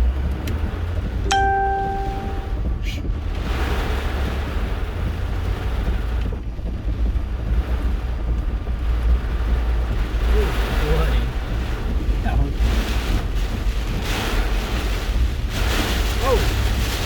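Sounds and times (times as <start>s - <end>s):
strong wind buffeting a vehicle: 0.0s - 1.3s, 1.9s - 17.0s
electronic chime: 1.3s - 2.6s.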